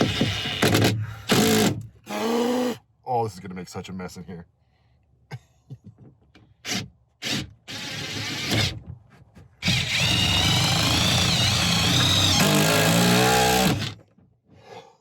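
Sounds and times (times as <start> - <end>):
power drill whining: 0.0 - 2.8, 6.7 - 8.7, 9.6 - 14.0.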